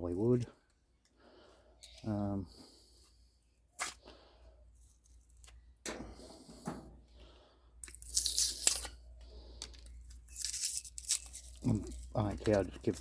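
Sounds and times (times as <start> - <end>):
tearing insulation off copper windings: 7.8 - 13.0.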